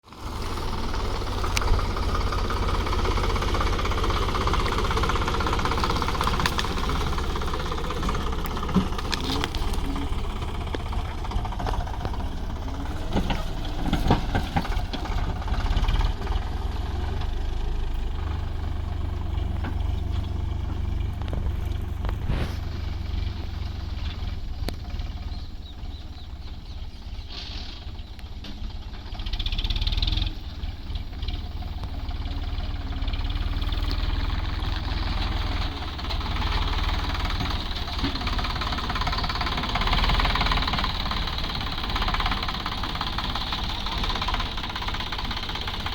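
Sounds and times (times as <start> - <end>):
tractor diesel engine rumbling: 0.0 - 45.9
knocks and clatters: 1.3 - 16.3.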